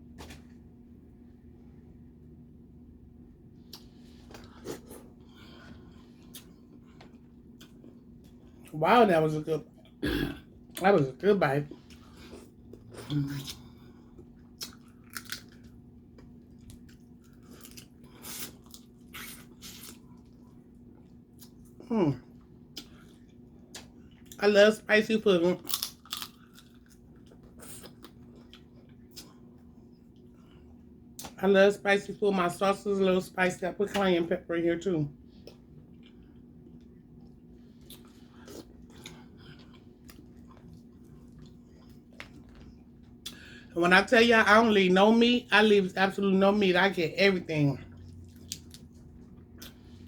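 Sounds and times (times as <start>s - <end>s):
person chewing: 3.6s - 8.7s, 11.7s - 24.4s, 25.6s - 31.4s, 35.3s - 43.7s, 47.9s - 50.0s
wet chewing: 35.3s - 43.5s, 47.9s - 50.0s.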